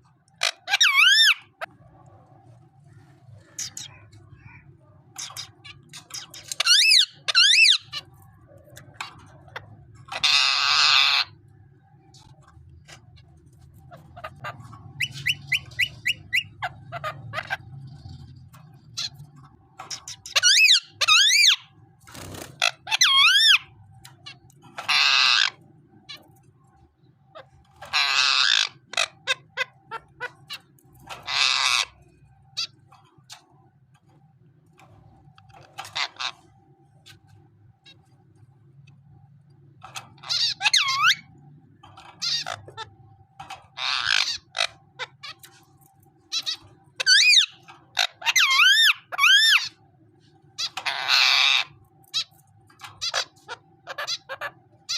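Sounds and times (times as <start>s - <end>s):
parrot screeching: 0.3s - 1.7s, 5.2s - 8.1s, 9.0s - 11.4s, 13.2s - 18.0s, 19.9s - 21.7s, 22.6s - 26.2s, 27.3s - 32.8s, 35.5s - 36.4s, 39.9s - 41.3s, 42.0s - 45.6s, 46.3s - 49.8s, 50.6s - 54.9s.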